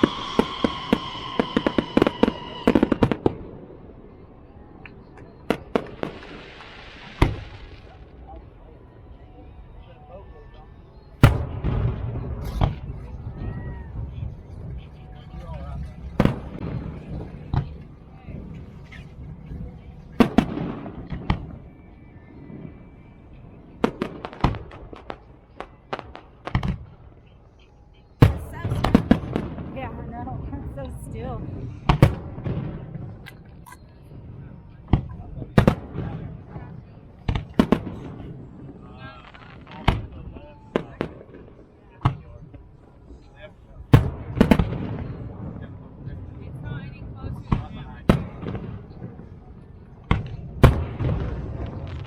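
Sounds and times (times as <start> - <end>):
fireworks crackling pops: 0.0 - 3.4, 4.8 - 8.1, 23.8 - 27.0, 37.2 - 42.7, 43.9 - 45.3, 50.0 - 52.0
fireworks bangs and boom: 0.0 - 4.3, 4.9 - 8.5, 11.2 - 27.3, 28.2 - 52.0
firework cracks and pops: 5.2 - 8.0, 23.8 - 26.9, 39.0 - 40.2, 50.1 - 52.0.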